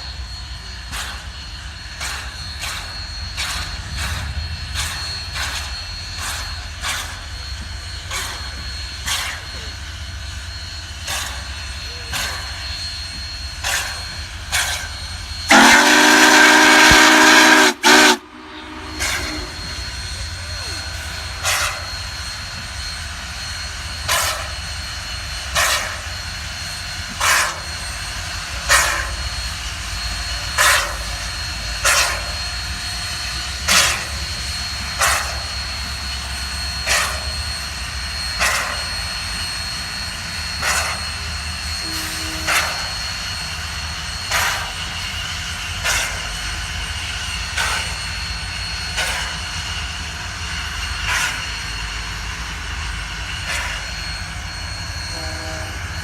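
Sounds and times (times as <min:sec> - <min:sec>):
steam locomotive exhaust puffs: 0:00.0 - 0:56.0
steady low rumble: 0:18.2 - 0:21.4.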